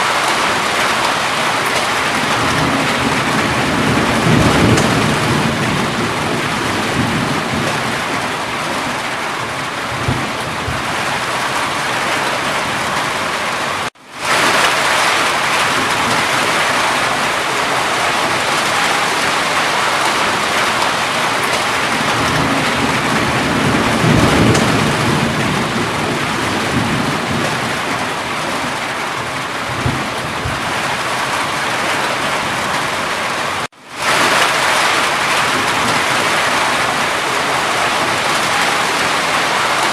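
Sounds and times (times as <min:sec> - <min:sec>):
heavy rain: 0:00.0 - 0:39.9
low thunder rumbles: 0:01.9 - 0:13.0, 0:15.6 - 0:32.9.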